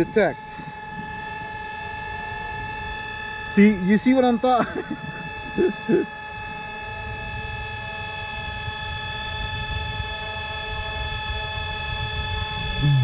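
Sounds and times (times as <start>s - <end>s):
drone propellers whining: 0.0s - 10.1s, 12.0s - 13.0s
wind rumbling on microphone: 6.5s - 13.0s.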